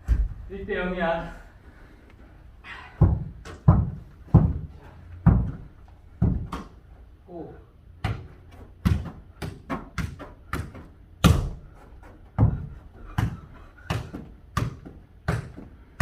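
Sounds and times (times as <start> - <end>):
football kicked and bouncing: 3.0 - 6.8, 8.0 - 15.7.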